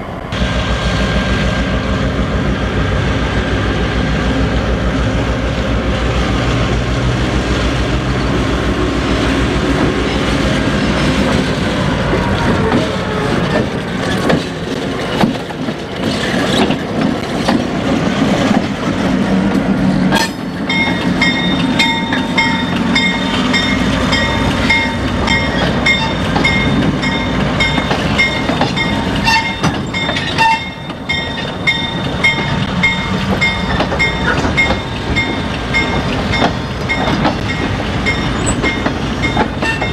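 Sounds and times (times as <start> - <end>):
diesel locomotive engine rumble: 0.0 - 39.9
train wheels clicking over rail joints: 9.0 - 39.9.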